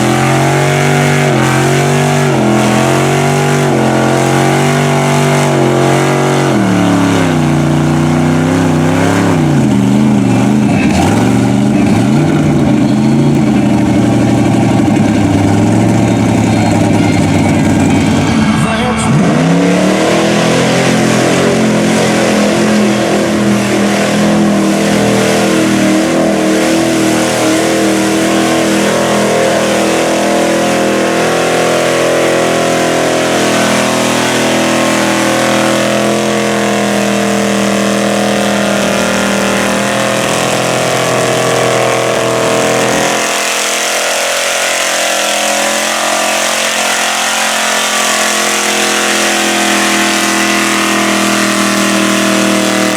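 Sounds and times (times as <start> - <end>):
truck engine revving high: 0.0 - 52.9.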